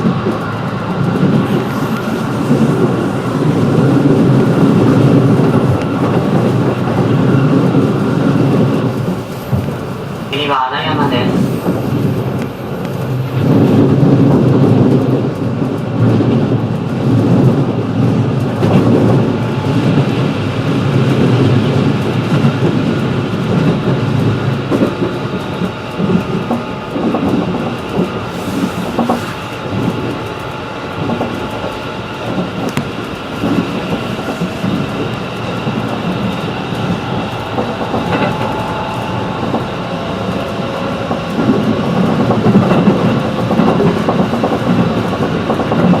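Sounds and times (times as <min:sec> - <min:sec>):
train motor noise: 0:00.0 - 0:10.4, 0:28.2 - 0:46.0
train wheels rumbling on rail: 0:00.0 - 0:46.0.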